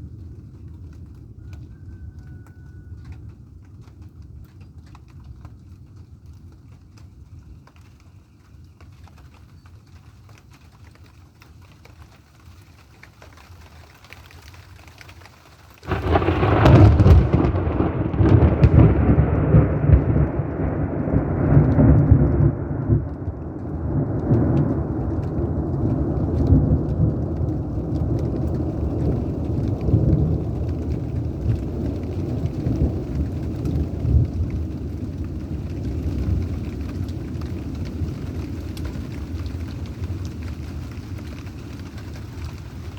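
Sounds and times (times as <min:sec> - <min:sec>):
rain falling: 0:00.0 - 0:42.9
thunder crack: 0:15.8 - 0:40.6
low thunder rumble: 0:15.8 - 0:42.9.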